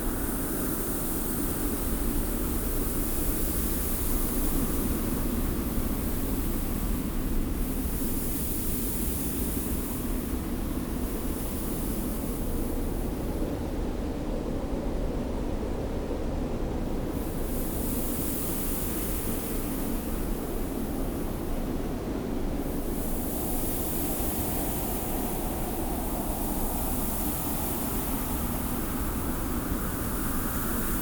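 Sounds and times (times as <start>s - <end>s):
hiss of blowing sand: 22.6s - 31.0s.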